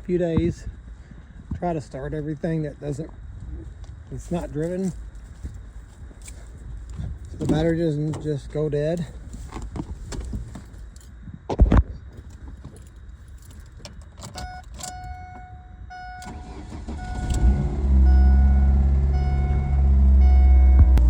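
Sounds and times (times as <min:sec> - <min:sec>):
car engine starting and running: 0:12.1 - 0:21.0
car warning chime beeping: 0:14.0 - 0:21.0.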